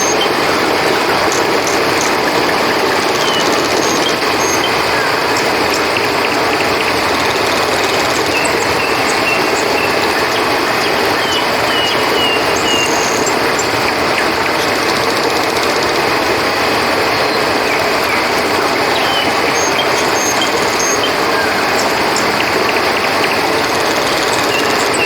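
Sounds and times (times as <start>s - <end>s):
flowing river water: 0.0s - 25.0s.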